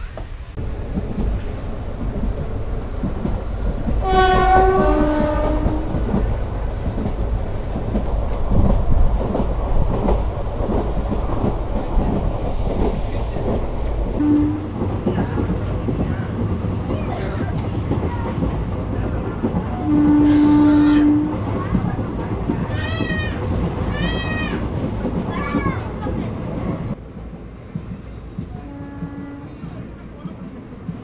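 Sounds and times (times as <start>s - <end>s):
train wheels clickety-clack: 0.1s - 31.0s
two-tone train horn: 4.0s - 6.0s, 14.2s - 14.8s, 19.8s - 21.4s, 28.6s - 29.6s.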